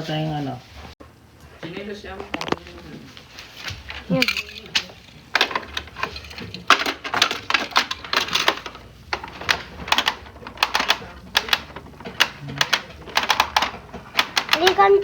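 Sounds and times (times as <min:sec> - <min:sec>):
plastic toy parts clicking and rattling: 0:03.8 - 0:15.0.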